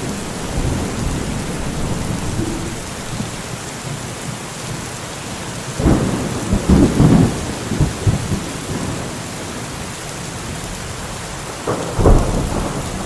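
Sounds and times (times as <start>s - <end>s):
thunder rumbling: 0.0s - 4.1s, 5.8s - 9.1s, 11.6s - 13.0s
heavy rain hissing: 0.0s - 13.0s.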